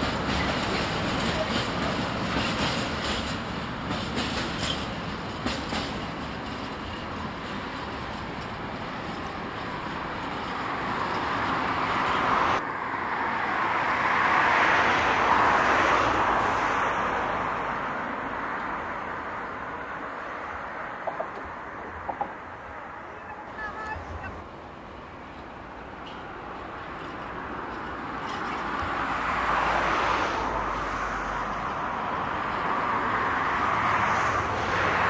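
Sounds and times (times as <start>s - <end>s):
wheels clicking over rail joints: 0.0s - 12.4s, 21.0s - 29.3s
train wheels rumbling on rail: 0.0s - 12.6s, 13.4s - 35.0s.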